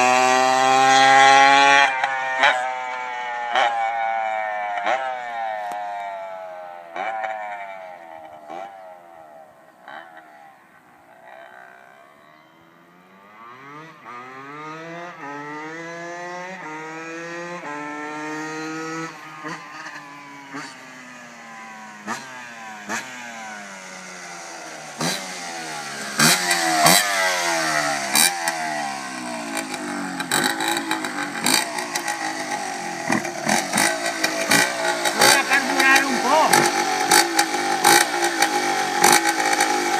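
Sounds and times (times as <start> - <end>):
two-stroke motorbike engine accelerating: 0.0 - 39.9
sharp exhaust cracks: 18.8 - 39.9.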